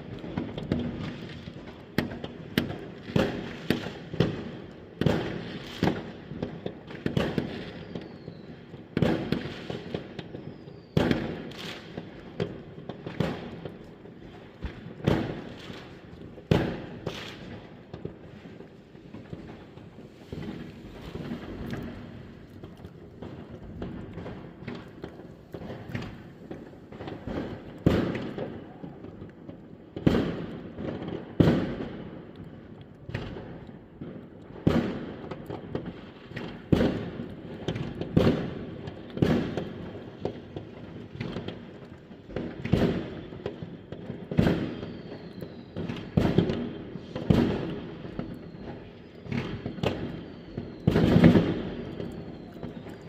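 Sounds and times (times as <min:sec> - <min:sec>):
fireworks bangs: 0:09.0 - 0:32.2, 0:44.3 - 0:53.0
faint falling whistles: 0:44.6 - 0:46.2, 0:48.0 - 0:53.0.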